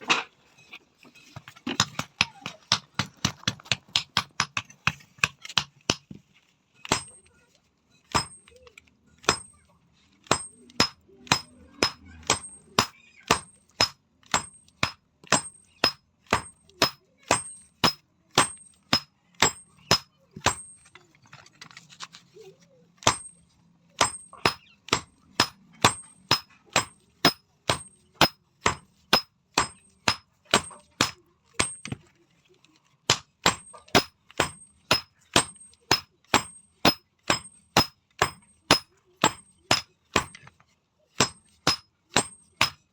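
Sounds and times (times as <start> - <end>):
hammer striking steel on anvil: 8.1 - 8.6, 10.3 - 20.9, 23.0 - 23.4, 24.0 - 32.0, 33.1 - 40.5, 41.2 - 42.9.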